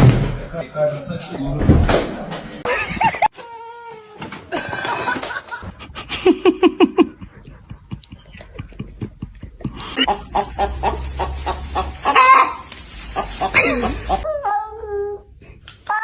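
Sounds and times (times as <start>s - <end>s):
person laughing: 4.5s - 10.3s, 13.5s - 14.3s.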